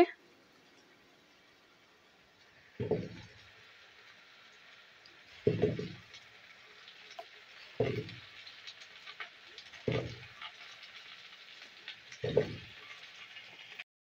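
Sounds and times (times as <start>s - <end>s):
oil sizzling: 0.0s - 13.9s
potato chunks thudding into oil: 2.8s - 3.4s, 5.4s - 6.1s, 7.2s - 8.3s, 9.6s - 10.6s, 12.2s - 12.8s.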